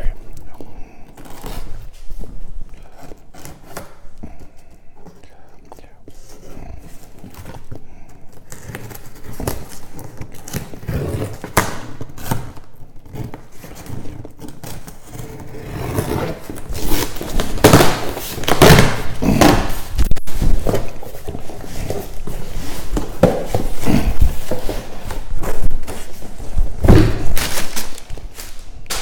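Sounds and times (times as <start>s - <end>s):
tape and cardboard ripping: 8.4s - 29.0s.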